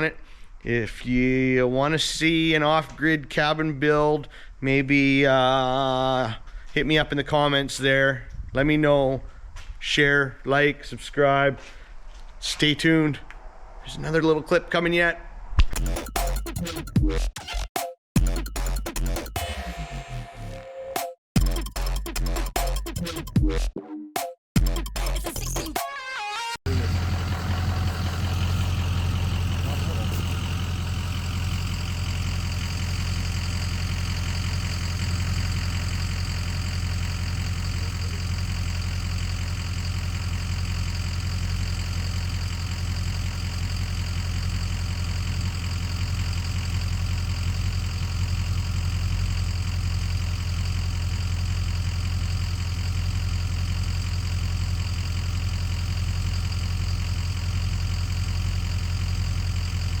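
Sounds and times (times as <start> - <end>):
engine idling: 26.7 - 60.0.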